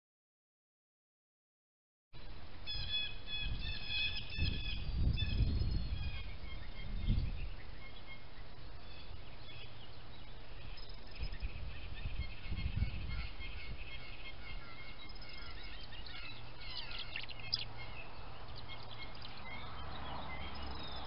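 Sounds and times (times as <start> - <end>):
small birds chirping: 2.2 - 21.0
wind buffeting microphone: 3.3 - 7.7, 11.0 - 16.6.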